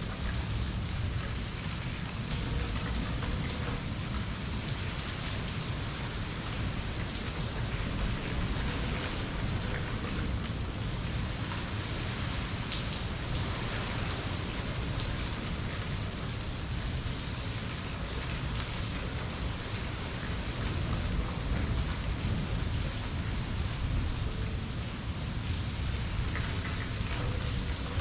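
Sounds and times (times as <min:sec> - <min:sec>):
raindrop ticks: 0:00.0 - 0:04.2, 0:25.5 - 0:28.0
steady rain falling: 0:00.0 - 0:28.0.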